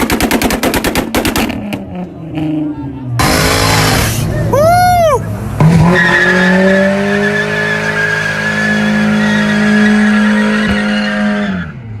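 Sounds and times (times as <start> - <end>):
engine at high revs: 1.3 - 4.4, 5.5 - 11.8
car tyres squealing: 2.7 - 11.8.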